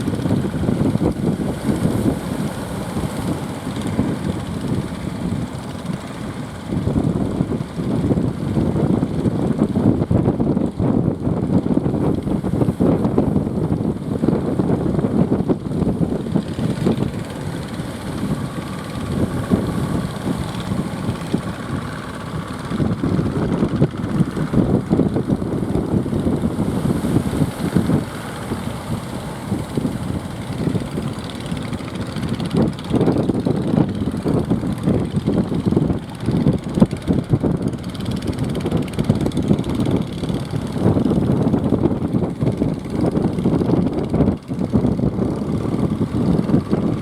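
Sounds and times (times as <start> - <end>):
faint boat motor running: 0.0 - 47.0
gusty wind buffeting microphone: 0.0 - 47.0.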